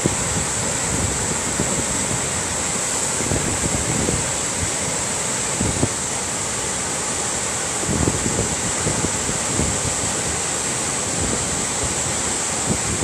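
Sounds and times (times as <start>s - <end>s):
outdoor rushing hiss: 0.0s - 13.0s
wind buffeting microphone: 3.2s - 4.8s, 7.8s - 10.4s, 11.0s - 13.0s.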